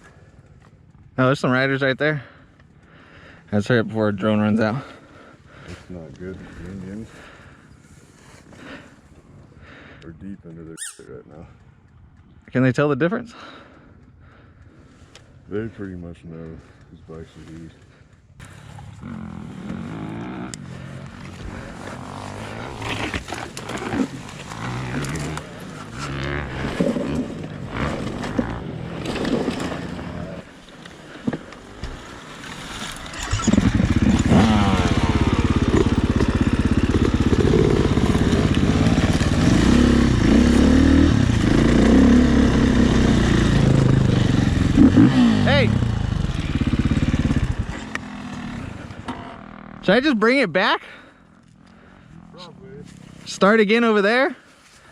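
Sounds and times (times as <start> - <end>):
dirt bike engine revving: 18.4 - 30.6, 33.0 - 50.4.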